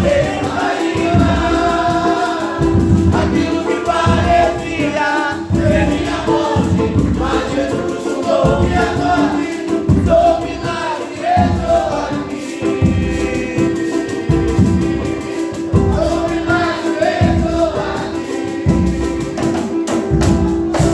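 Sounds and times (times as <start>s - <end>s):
choir singing a hymn: 0.0s - 20.9s
live band with steady beat: 0.0s - 20.9s.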